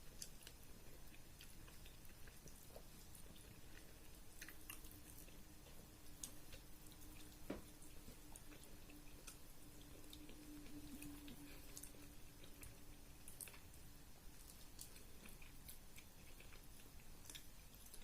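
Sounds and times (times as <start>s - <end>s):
faint steady hum: 0.0s - 18.0s
wet chewing: 0.0s - 18.0s.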